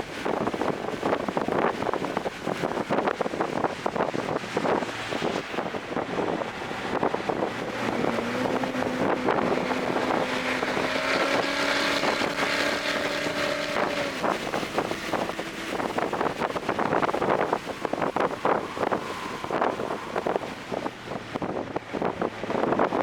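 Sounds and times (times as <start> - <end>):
wind and road noise: 0.0 - 23.0
car engine accelerating: 0.2 - 23.0.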